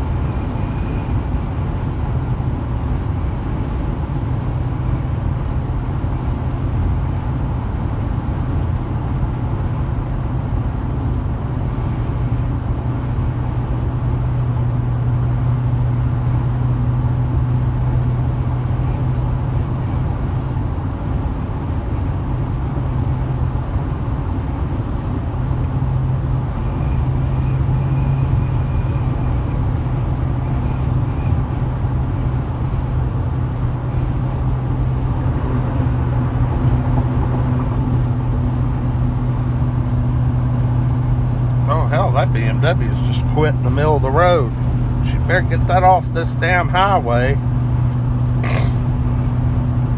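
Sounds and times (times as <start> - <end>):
road and tyre rumble: 0.0 - 49.9
low engine drone: 21.4 - 49.9.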